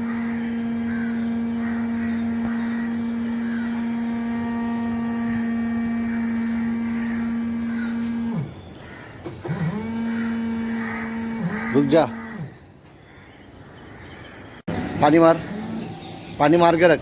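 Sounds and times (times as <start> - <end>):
steady hum: 0.0 - 12.6.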